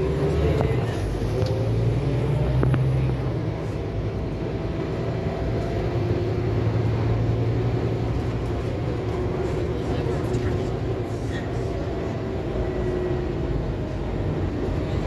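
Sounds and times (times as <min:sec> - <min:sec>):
bus engine humming: 0:00.0 - 0:15.0.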